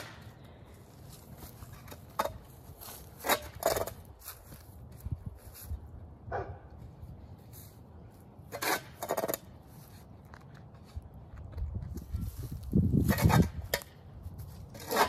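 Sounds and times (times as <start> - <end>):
dog barking: 6.3 - 6.7.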